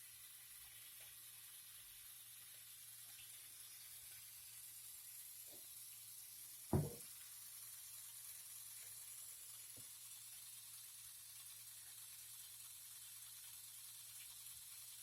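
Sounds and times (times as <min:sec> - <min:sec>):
faint steady hiss: 0:00.0 - 0:15.0
short knock: 0:06.7 - 0:07.0
soft tap: 0:06.7 - 0:07.0.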